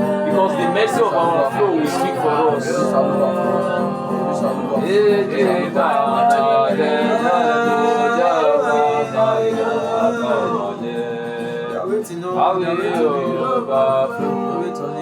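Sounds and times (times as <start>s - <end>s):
man singing wordless notes: 0.0s - 15.0s
sustained keyboard pad: 6.7s - 11.0s.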